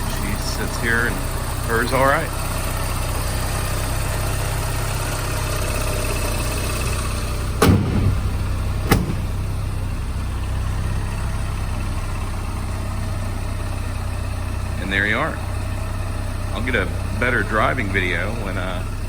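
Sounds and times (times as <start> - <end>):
car engine idling: 0.0 - 19.0
sharp knocks: 7.6 - 9.8.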